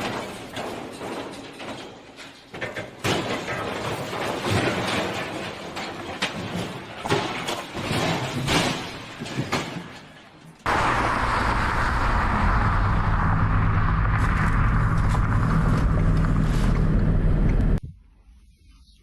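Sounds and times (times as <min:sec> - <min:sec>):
irregular knocks and clattering thumps: 0:00.0 - 0:10.4
vehicle engine and road noise: 0:10.2 - 0:17.8.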